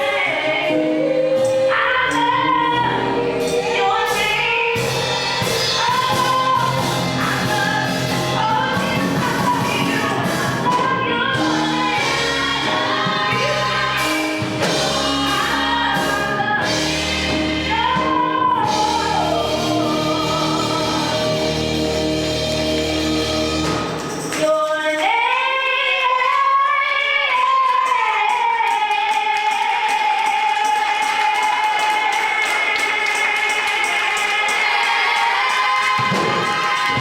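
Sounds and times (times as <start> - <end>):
person singing gospel: 0.0 - 23.8, 24.4 - 37.0
band with deep bass: 2.8 - 24.3.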